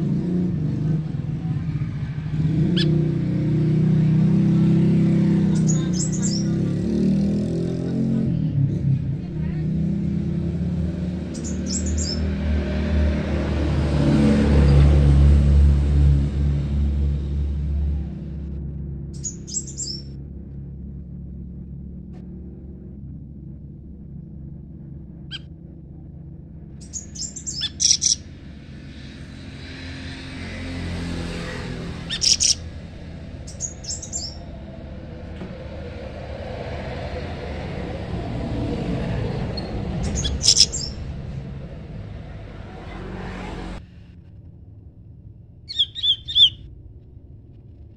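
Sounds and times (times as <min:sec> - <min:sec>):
vehicle engine rumbling: 0:00.0 - 0:47.9
songbirds chirping: 0:00.4 - 0:08.3, 0:09.6 - 0:15.1, 0:19.2 - 0:20.1, 0:26.8 - 0:43.2, 0:45.7 - 0:46.6
small bird chirping: 0:02.7 - 0:03.0, 0:04.2 - 0:06.7, 0:11.3 - 0:12.4, 0:19.2 - 0:20.1, 0:26.8 - 0:28.4, 0:31.4 - 0:34.6, 0:39.5 - 0:41.2, 0:45.7 - 0:46.6.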